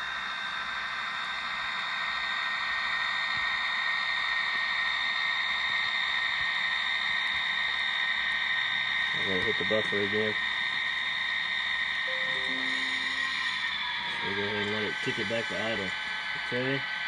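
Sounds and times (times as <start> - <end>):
high whine: 12.1 - 14.6.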